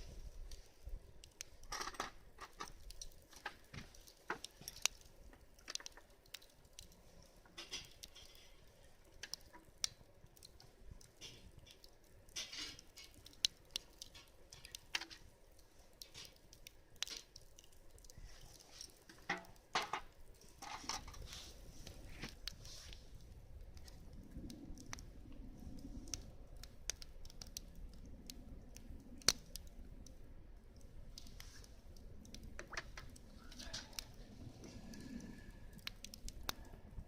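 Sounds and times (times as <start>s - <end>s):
light clicks and crackles: 0.0s - 37.0s.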